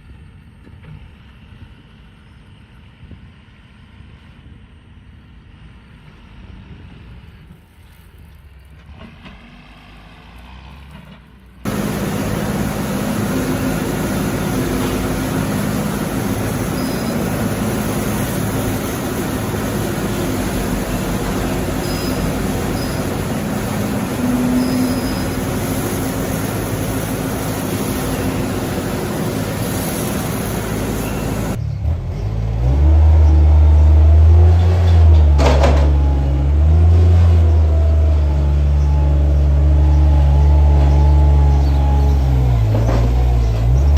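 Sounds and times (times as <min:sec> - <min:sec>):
deep loud engine: 0:08.9 - 0:43.9
engine-driven machinery running: 0:11.6 - 0:43.9.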